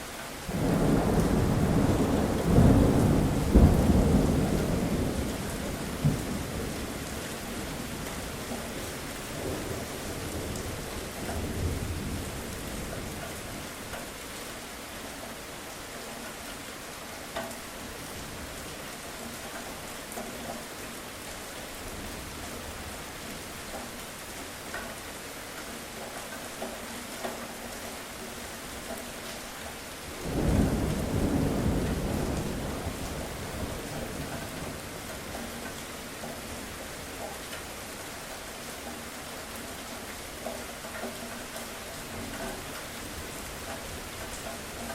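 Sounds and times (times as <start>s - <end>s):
steady rain: 0.0s - 44.9s
loud thunderclap: 0.5s - 6.9s, 30.2s - 34.8s
thunder rumbling: 0.5s - 8.7s, 30.2s - 35.6s.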